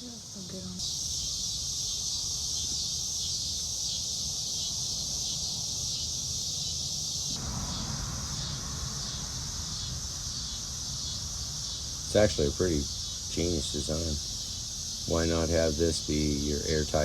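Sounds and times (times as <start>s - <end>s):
high-pitched hiss or chirring: 0.0s - 17.0s
low rumble: 7.3s - 15.9s
wide low noise: 7.3s - 17.0s.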